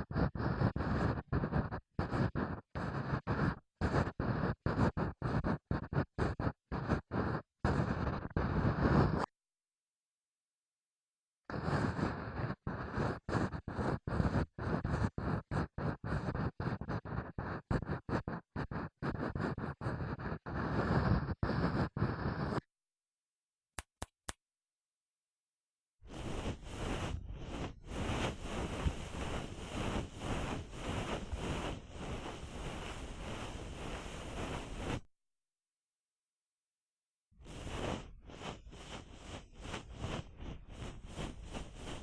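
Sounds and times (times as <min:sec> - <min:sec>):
small clicks: 0:23.8 - 0:24.4
scratchy rustle: 0:37.5 - 0:42.0.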